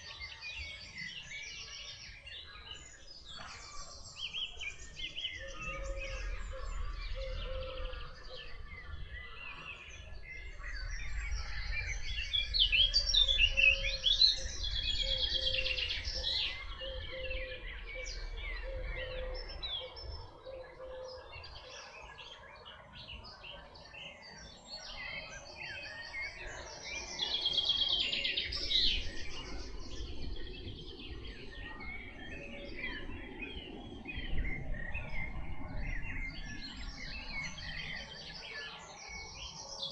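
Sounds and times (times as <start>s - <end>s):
songbirds singing and chirping: 0.0s - 39.9s
low rumble: 4.8s - 20.3s.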